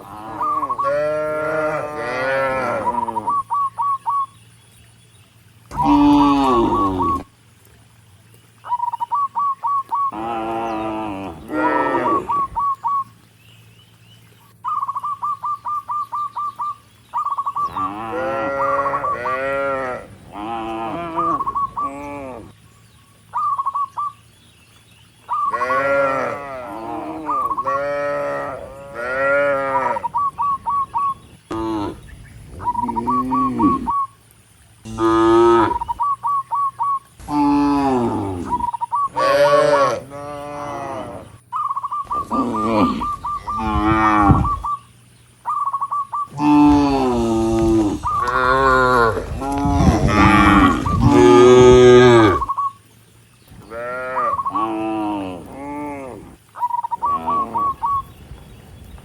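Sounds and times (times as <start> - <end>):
cattle mooing: 0.0 - 3.3, 5.7 - 7.2, 10.1 - 12.3, 17.7 - 22.5, 25.5 - 30.1, 34.8 - 35.8, 37.2 - 41.4, 42.1 - 44.6, 46.3 - 52.5, 53.7 - 56.4.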